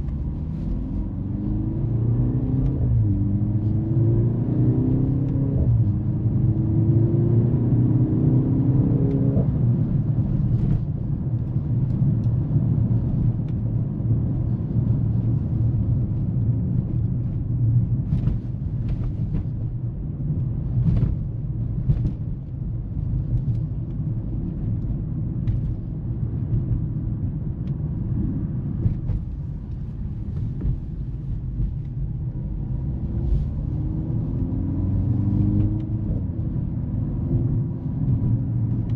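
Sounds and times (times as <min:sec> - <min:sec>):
car engine: 0:00.0 - 0:38.9
road noise: 0:00.0 - 0:38.9.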